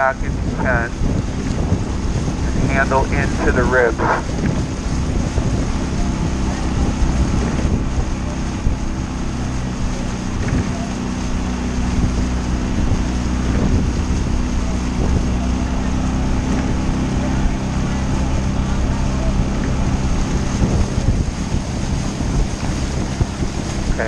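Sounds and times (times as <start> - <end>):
motorboat engine humming: 0.0 - 24.0
water noise: 0.0 - 24.0
wind buffeting microphone: 0.0 - 24.0.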